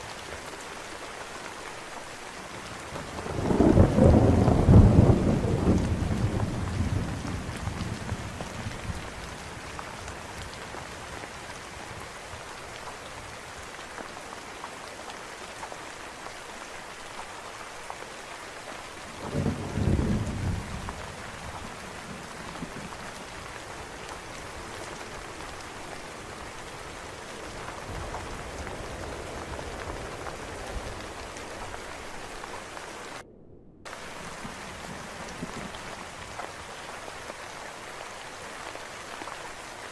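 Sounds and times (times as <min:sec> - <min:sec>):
steady rain: 0:00.0 - 0:33.2, 0:33.9 - 0:39.9
thunder rumbling: 0:02.9 - 0:11.4, 0:19.1 - 0:37.1.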